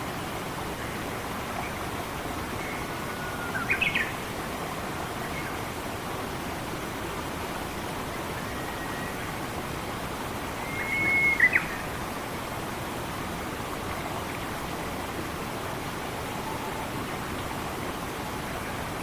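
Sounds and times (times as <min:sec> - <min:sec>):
forest stream rushing: 0:00.0 - 0:19.0
bird whistled call: 0:10.6 - 0:11.8.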